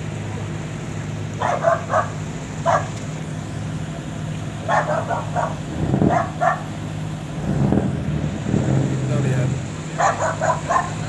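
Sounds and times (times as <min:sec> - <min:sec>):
boat engine humming: 0:00.0 - 0:11.0
dog barking: 0:01.4 - 0:02.9, 0:04.7 - 0:06.7, 0:10.0 - 0:11.0.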